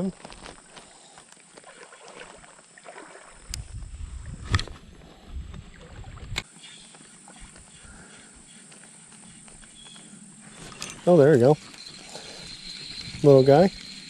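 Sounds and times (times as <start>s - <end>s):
wind rumble on microphone: 3.4s - 6.4s.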